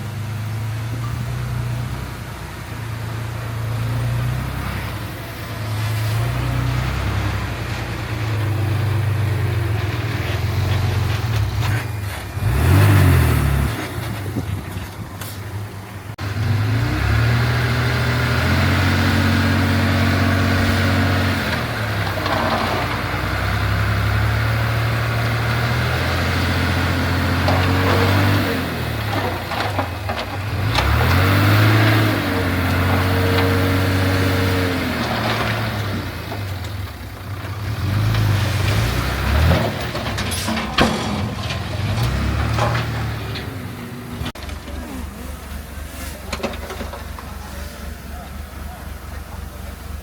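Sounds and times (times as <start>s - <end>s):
diesel engine revving: 0.0s - 50.0s
sharp knocks and clanks: 38.1s - 45.0s, 46.0s - 47.5s.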